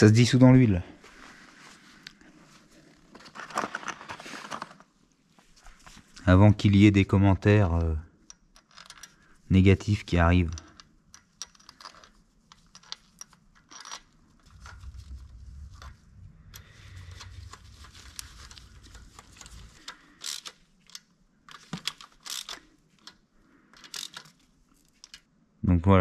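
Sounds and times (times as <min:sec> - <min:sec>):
light clicks and rustles: 0:10.3 - 0:25.3
low rumble: 0:14.4 - 0:20.0.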